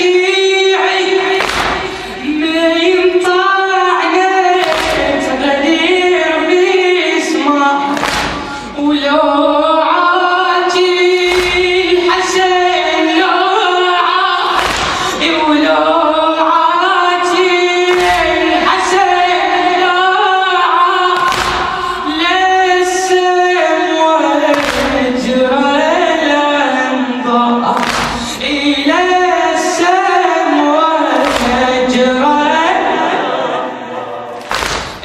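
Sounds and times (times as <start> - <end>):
voices singing a chant together: 0.0 - 35.0
heavy rhythmic thumps: 1.2 - 2.9, 4.6 - 6.0, 7.9 - 9.0, 11.2 - 12.6, 14.4 - 15.6, 17.9 - 19.0, 21.2 - 22.2, 24.5 - 25.4, 27.7 - 28.7, 31.1 - 32.1, 34.3 - 35.0.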